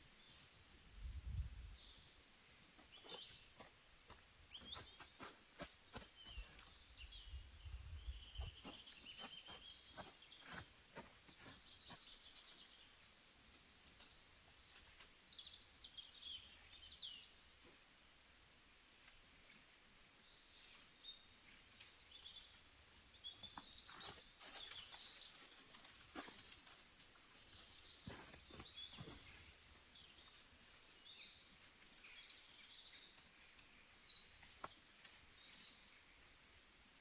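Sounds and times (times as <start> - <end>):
faint small-bird chirps: 0.0 - 37.0
light clicks and crackles: 8.6 - 15.5, 16.2 - 19.7, 20.4 - 37.0.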